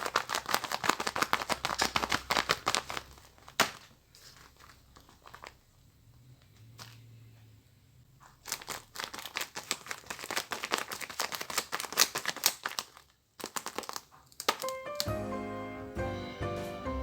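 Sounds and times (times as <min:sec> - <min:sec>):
paper crinkling and rustling: 0:00.0 - 0:05.8, 0:08.2 - 0:15.1.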